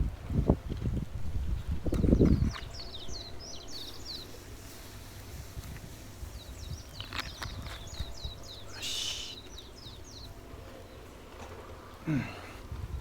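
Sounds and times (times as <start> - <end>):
small birds chirping: 1.4 - 12.8
harsh bird call: 8.2 - 10.3.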